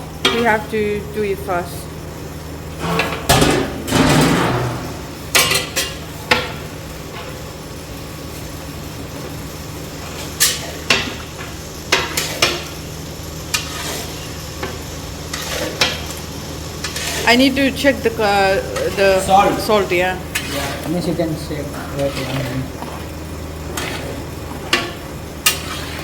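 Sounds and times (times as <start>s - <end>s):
steady low hum: 0.0s - 26.0s
spoon scraping cooking pot: 16.8s - 17.3s, 18.7s - 21.0s, 21.9s - 26.0s.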